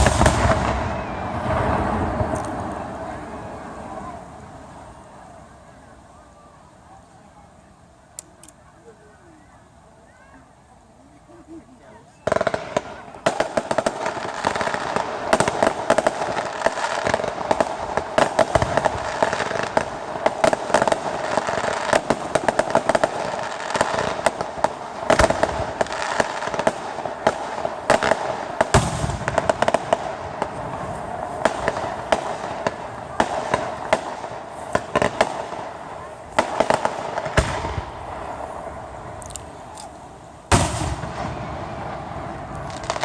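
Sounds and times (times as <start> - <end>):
heavy firework booms: 0.0 - 5.5, 12.2 - 39.2, 40.4 - 43.0
fireworks crackling and popping: 0.0 - 10.5, 11.2 - 43.0.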